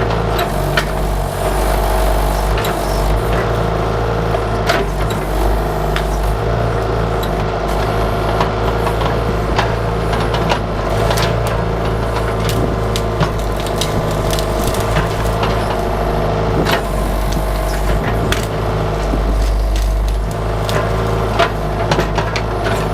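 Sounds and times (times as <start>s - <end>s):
diesel engine running under load: 0.0s - 22.9s
cracks and knocks of bucket digging: 8.4s - 16.0s, 16.6s - 22.9s.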